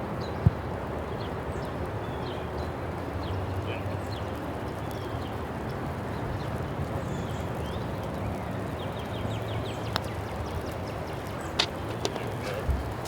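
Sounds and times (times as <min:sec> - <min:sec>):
small birds chirping: 0:01.1 - 0:13.0.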